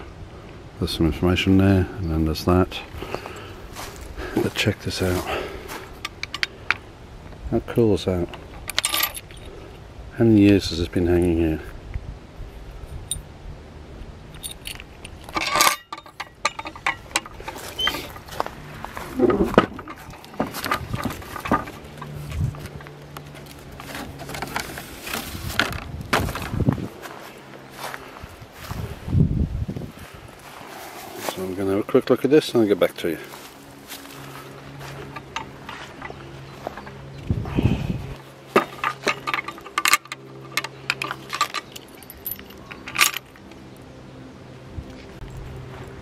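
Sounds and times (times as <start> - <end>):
footsteps crunching on path: 2.9 - 6.1, 16.9 - 31.8, 32.6 - 43.6, 44.9 - 46.0
sharp clicks and clinks: 14.3 - 18.3, 38.6 - 43.6
wind buffeting microphone: 16.9 - 22.9, 25.3 - 27.1, 27.8 - 30.6, 35.0 - 38.2
wind gust on microphone: 25.3 - 27.0, 28.2 - 30.4, 37.1 - 38.2.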